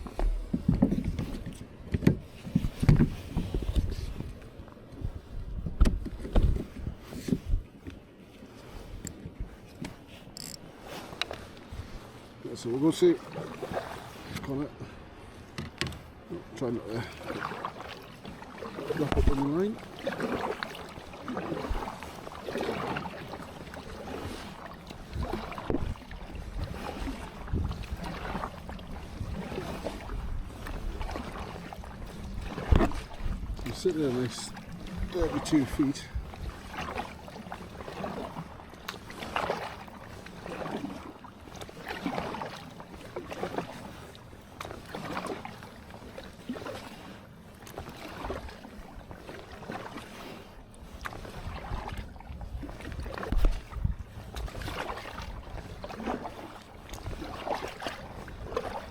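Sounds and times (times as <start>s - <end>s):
wind on microphone: 0.0s - 7.8s, 25.1s - 34.0s, 34.7s - 36.7s, 51.3s - 55.8s
water splashing against hull: 0.0s - 58.9s.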